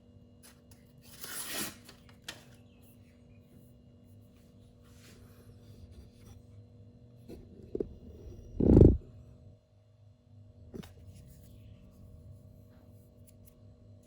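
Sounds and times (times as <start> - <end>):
steady low hum: 2.8 - 14.0.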